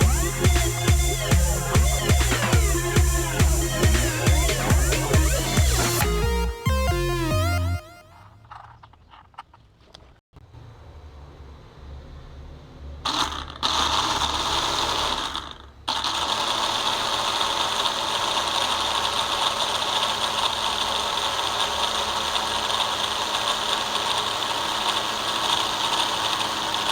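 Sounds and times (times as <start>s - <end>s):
toy helicopter motor whirring: 13.1s - 26.9s.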